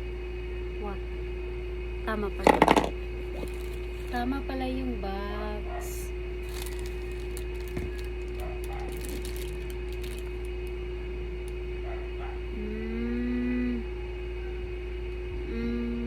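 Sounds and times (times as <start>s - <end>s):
steady electrical hum: 0.0s - 16.0s
packaging crinkling and clicking: 2.7s - 4.2s, 6.4s - 10.8s.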